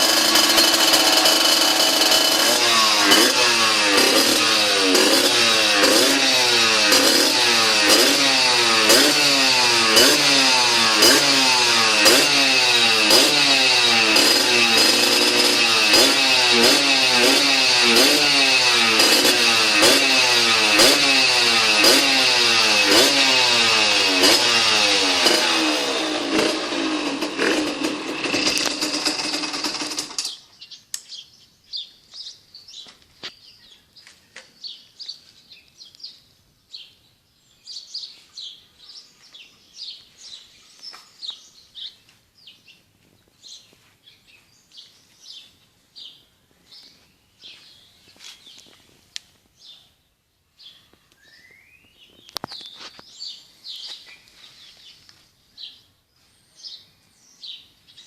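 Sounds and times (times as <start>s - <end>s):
two-stroke engine revving: 0.0s - 30.4s
small birds chirping: 29.3s - 58.0s.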